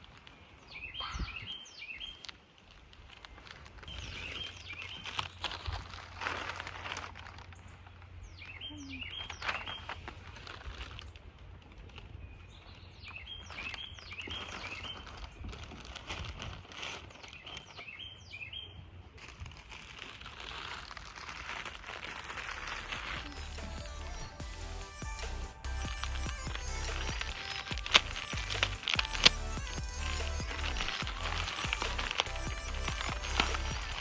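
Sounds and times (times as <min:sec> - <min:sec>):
songbird chirping: 0:00.1 - 0:02.4, 0:07.6 - 0:10.1, 0:12.0 - 0:15.4, 0:17.2 - 0:18.8
rustling: 0:02.0 - 0:18.2, 0:19.0 - 0:34.0
steady low rumble: 0:22.6 - 0:34.0.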